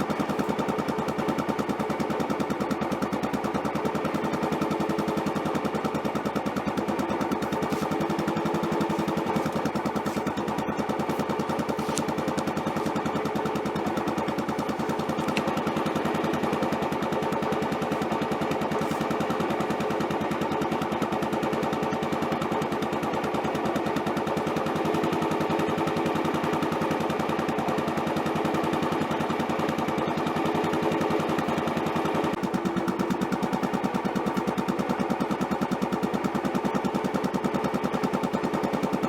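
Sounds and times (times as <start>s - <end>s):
motorcycle engine idling: 0.0s - 39.0s.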